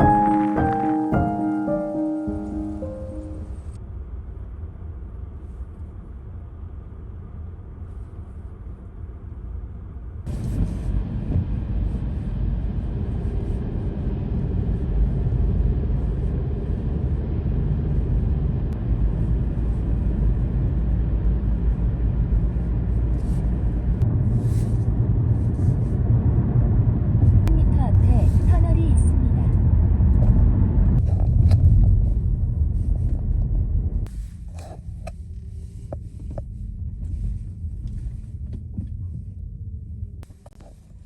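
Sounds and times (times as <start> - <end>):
car road and engine rumble: 10.2 - 35.1.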